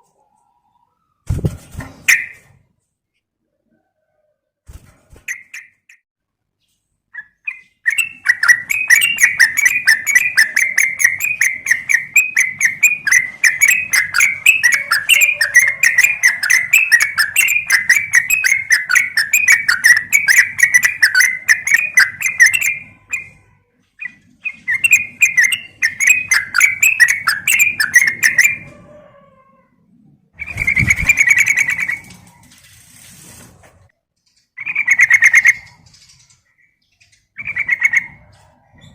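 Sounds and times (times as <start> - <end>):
bird chattering chirps: 6.6 - 28.7, 34.6 - 38.3.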